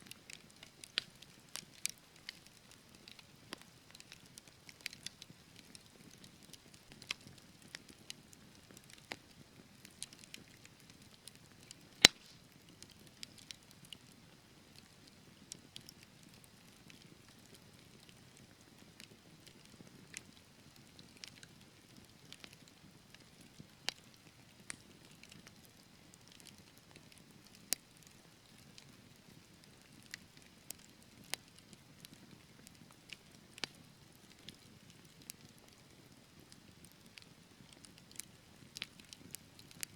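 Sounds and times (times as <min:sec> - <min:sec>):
soft low hiss of fire: 0:00.0 - 0:39.9
wood fire crackling and popping: 0:00.0 - 0:39.9.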